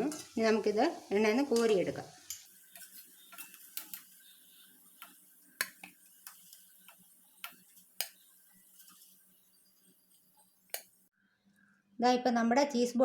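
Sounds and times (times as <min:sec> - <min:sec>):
hot oil hissing: 0:00.0 - 0:11.1
metal spoon clicking on frying pan: 0:01.5 - 0:09.1.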